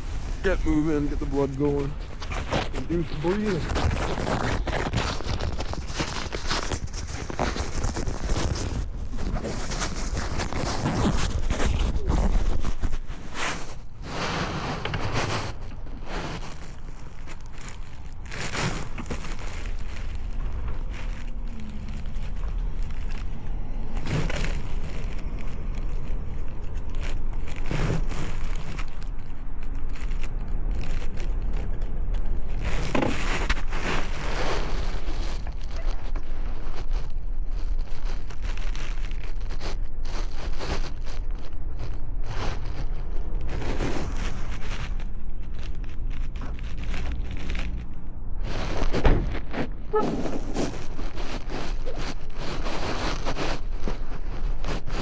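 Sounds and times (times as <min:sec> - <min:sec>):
crunching footsteps: 0:00.0 - 0:55.0
wind rumbling on microphone: 0:00.0 - 0:55.0.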